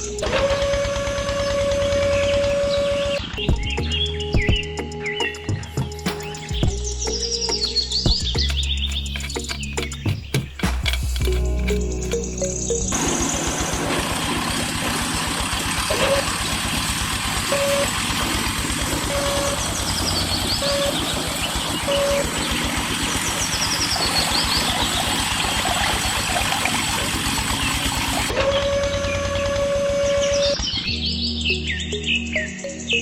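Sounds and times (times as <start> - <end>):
engine running: 0.0 - 4.9, 5.5 - 32.5
short beeps: 17.5 - 18.0, 19.1 - 19.6, 20.6 - 21.1, 21.9 - 22.4.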